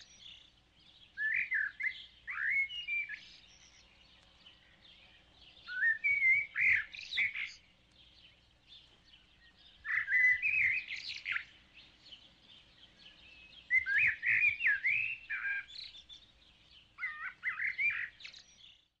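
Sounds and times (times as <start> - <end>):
bird chirping and warbling: 0.0 - 19.0.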